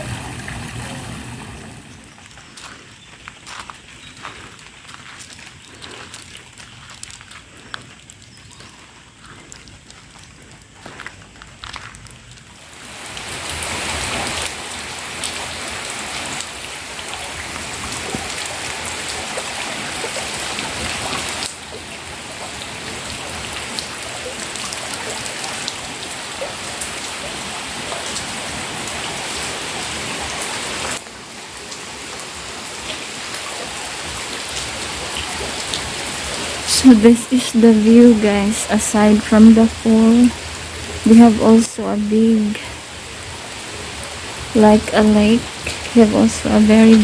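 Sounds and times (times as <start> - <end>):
steady rain falling: 0.0 - 47.0.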